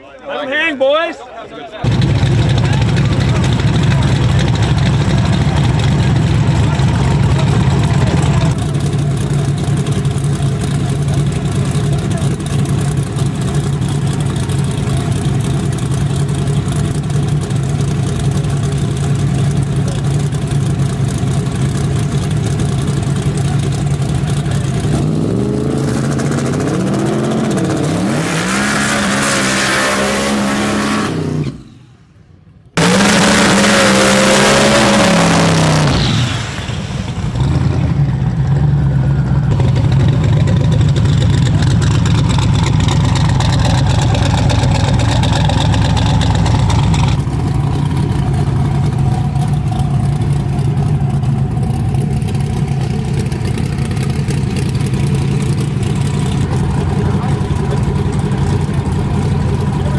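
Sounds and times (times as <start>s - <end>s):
car engines idling and revving: 1.8s - 59.9s.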